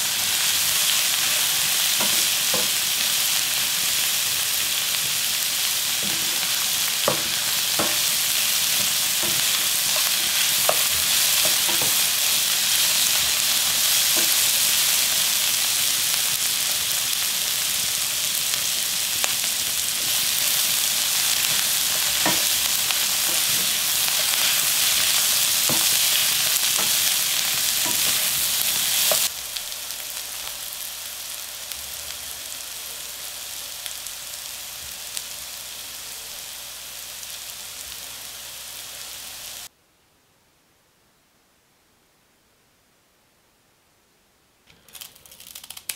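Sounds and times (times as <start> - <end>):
roots sizzling in a frying pan: 0.0 - 39.7.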